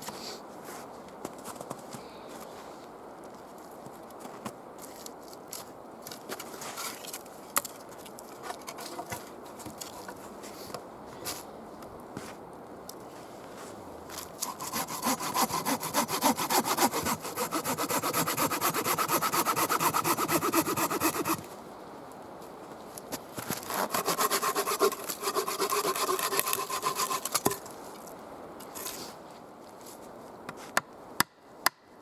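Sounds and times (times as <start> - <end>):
hand saw cutting wood: 14.4 - 21.5, 23.5 - 27.6.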